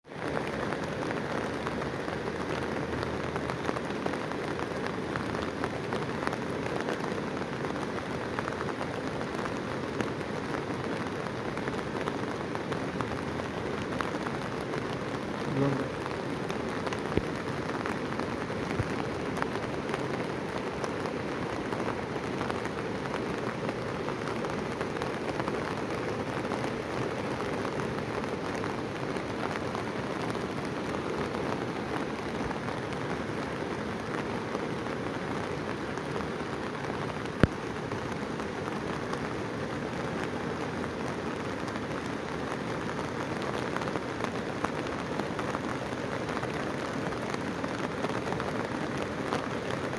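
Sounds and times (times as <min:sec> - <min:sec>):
heavy water rushing: 0:00.1 - 0:49.9.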